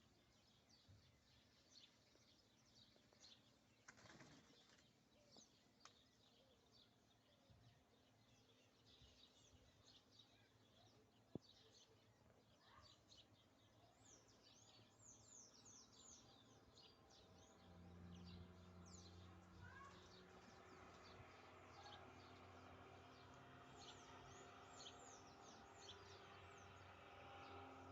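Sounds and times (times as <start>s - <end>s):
songbirds chirping: 0.0s - 27.9s.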